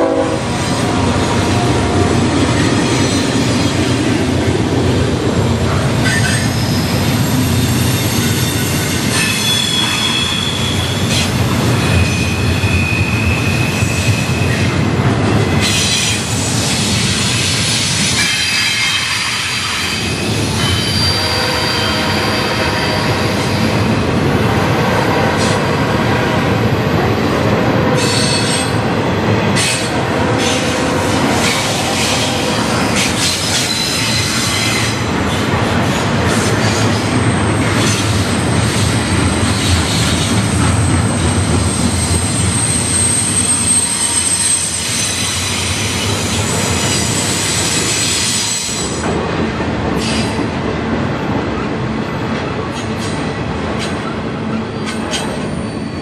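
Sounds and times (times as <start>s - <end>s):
freight train wheels rumbling: 0.0s - 56.0s
high wheel squeals: 6.0s - 11.3s, 12.0s - 14.7s, 17.3s - 23.7s, 33.0s - 35.1s, 40.9s - 49.0s, 54.6s - 56.0s.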